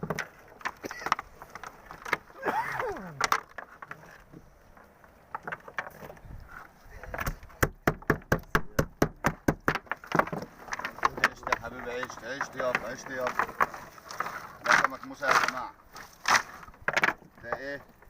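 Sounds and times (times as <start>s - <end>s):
sharp hard knocks: 7.6s - 10.4s.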